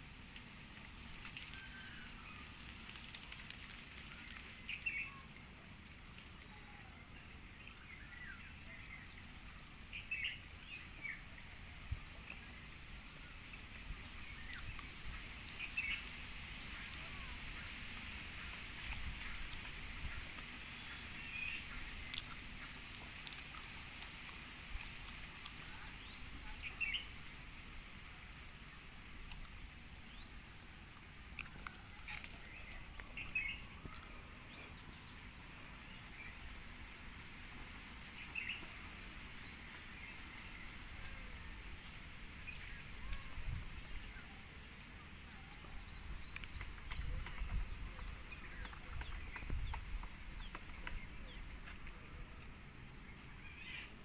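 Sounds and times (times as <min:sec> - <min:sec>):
steady high hiss: 0:00.0 - 0:54.0.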